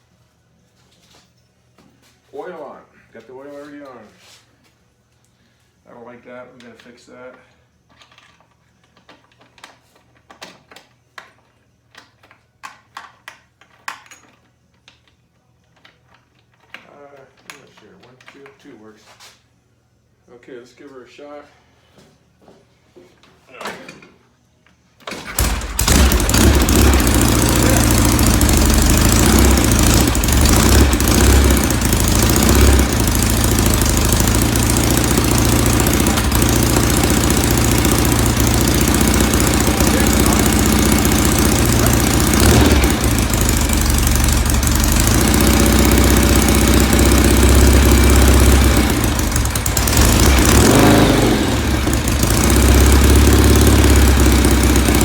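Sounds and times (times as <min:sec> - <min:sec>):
motorcycle engine starting and running: 0:25.0 - 0:55.0.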